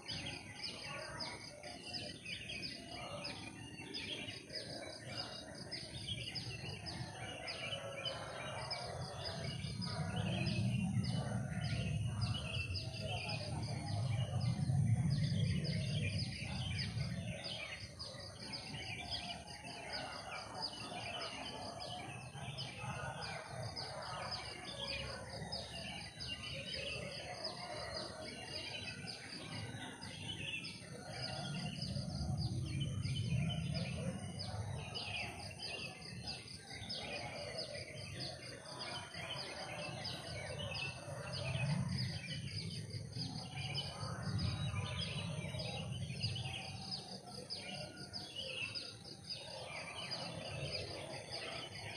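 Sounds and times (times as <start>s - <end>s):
birds chirping and calling: 0.0s - 51.9s.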